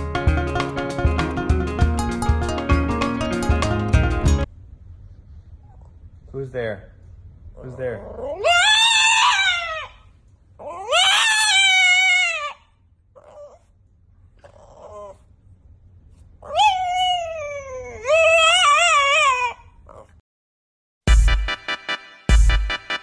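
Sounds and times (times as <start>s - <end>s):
cat yowling: 8.2s - 10.0s, 10.6s - 13.6s, 16.5s - 20.1s.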